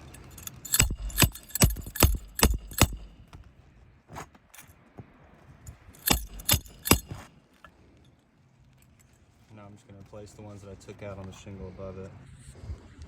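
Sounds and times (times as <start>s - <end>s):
hammer blows on roofing nails: 0.5s - 3.5s, 6.0s - 7.3s.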